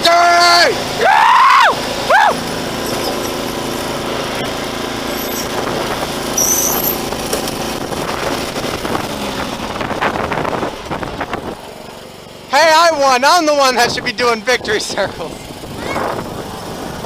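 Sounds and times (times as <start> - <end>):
riding lawn mower engine running: 0.0 - 17.0
high whistle: 6.4 - 7.0.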